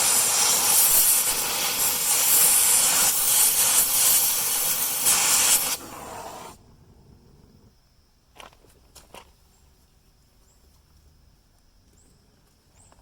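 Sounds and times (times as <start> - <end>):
loud rough hiss: 0.0 - 6.6.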